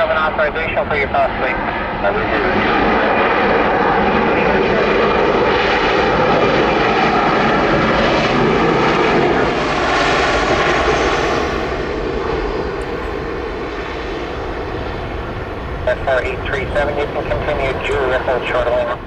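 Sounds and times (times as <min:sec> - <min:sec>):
airliner engine noise: 0:00.0 - 0:19.0.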